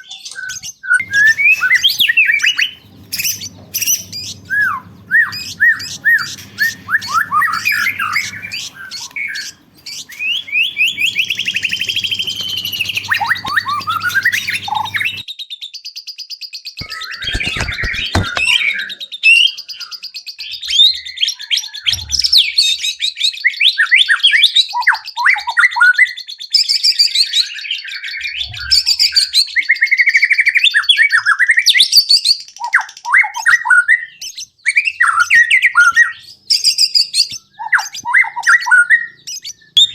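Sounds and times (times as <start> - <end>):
songbird singing varied song: 1.0 - 15.2
clicks: 16.8 - 18.5.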